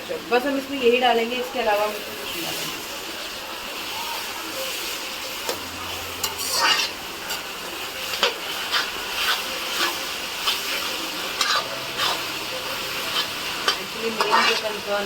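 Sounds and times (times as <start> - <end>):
vegetables sizzling in oil: 0.0 - 15.0
spatula scraping pan: 5.5 - 15.0.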